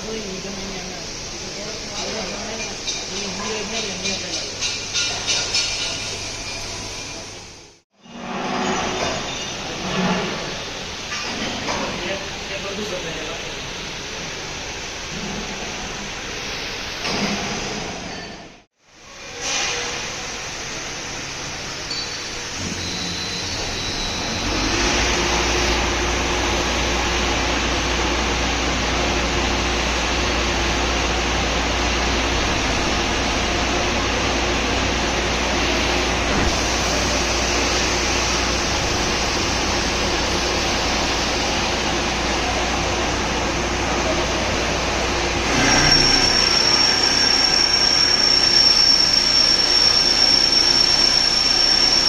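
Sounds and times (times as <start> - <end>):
drilling machine running: 22.7 - 52.0.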